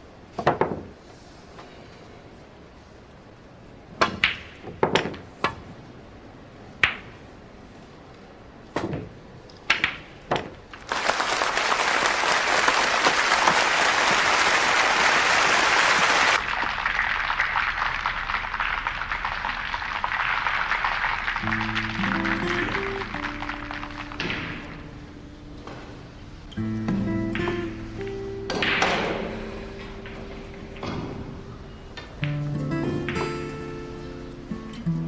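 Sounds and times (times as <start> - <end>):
crowd applause: 10.8 - 25.0
sharp single claps: 10.8 - 25.0.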